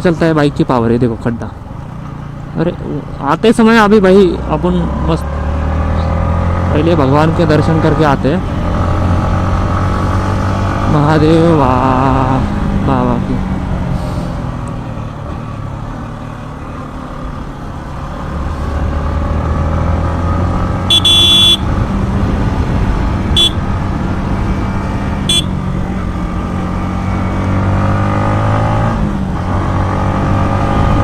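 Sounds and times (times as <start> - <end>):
motorcycle engine running: 6.0 - 19.6, 20.4 - 31.0
horn toots: 20.8 - 21.7, 23.3 - 23.7, 25.2 - 25.7.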